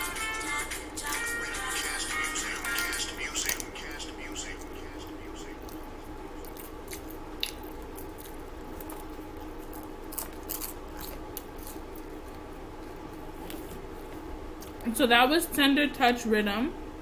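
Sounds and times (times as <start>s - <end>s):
chewing: 1.6s - 13.7s.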